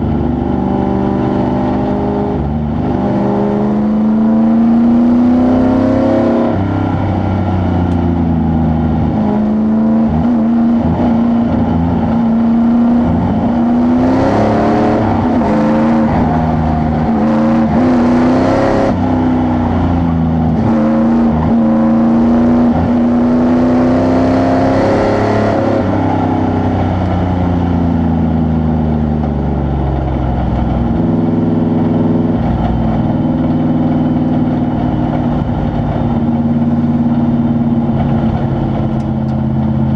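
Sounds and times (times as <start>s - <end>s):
truck engine revving: 8.5s - 27.3s.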